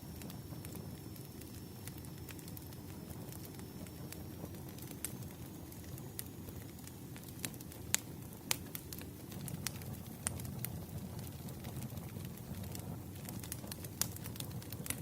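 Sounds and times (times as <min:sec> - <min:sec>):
fire popping and snapping: 0:00.0 - 0:15.0
burning logs rushing: 0:07.2 - 0:15.0.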